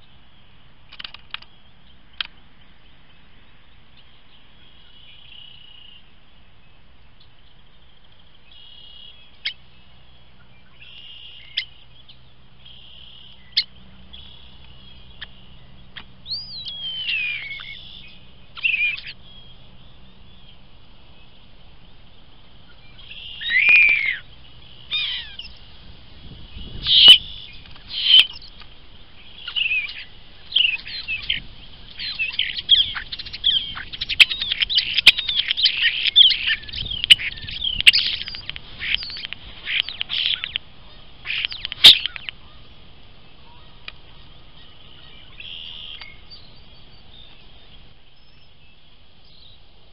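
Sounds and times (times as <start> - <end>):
bird chattering and whistling: 15.0 - 19.2, 22.7 - 25.6, 26.6 - 28.5, 29.4 - 40.6, 41.2 - 42.4.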